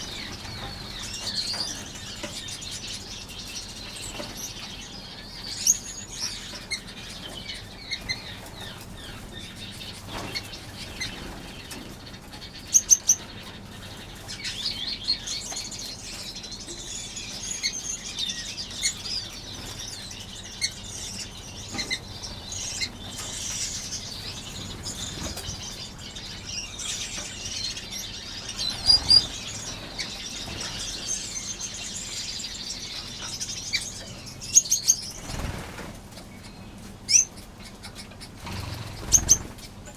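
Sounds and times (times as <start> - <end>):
sharp bird calls: 0.0 - 35.8, 36.4 - 39.9
finches chirping: 0.0 - 39.9
wing flutter: 38.4 - 39.7.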